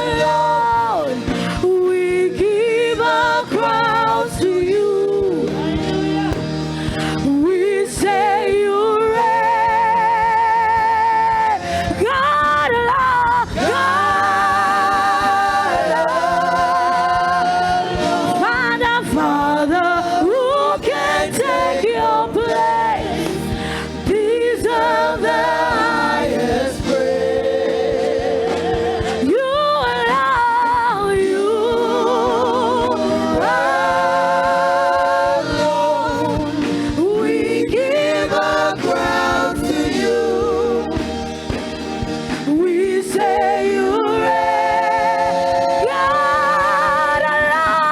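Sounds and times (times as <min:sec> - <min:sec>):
instrumental accompaniment: 0:00.0 - 0:47.9
voices singing with vibrato: 0:00.0 - 0:47.9.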